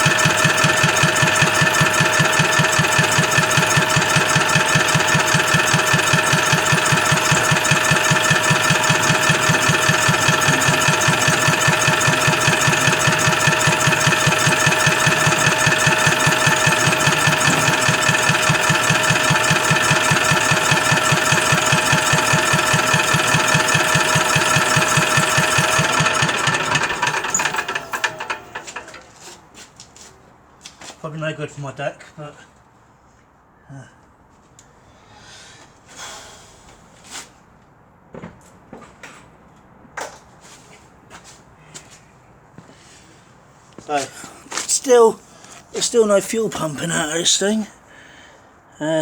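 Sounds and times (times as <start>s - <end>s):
power tool whine: 0.0s - 29.0s
diesel engine cranking: 0.0s - 29.2s.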